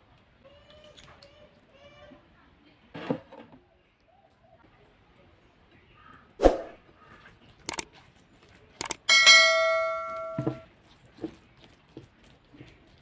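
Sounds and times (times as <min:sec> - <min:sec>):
metal utensil clinking on dish: 0:09.1 - 0:10.6.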